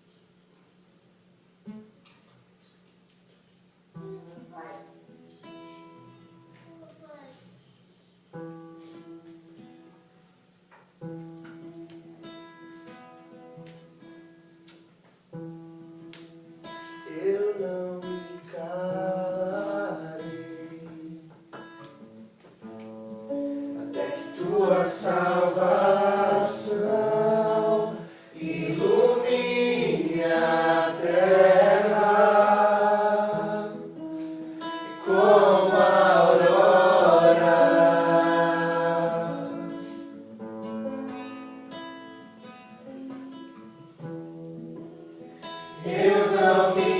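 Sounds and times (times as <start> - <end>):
acoustic guitar: 0.0 - 46.9
people singing worship song: 17.1 - 21.3, 23.8 - 40.3, 45.7 - 46.9.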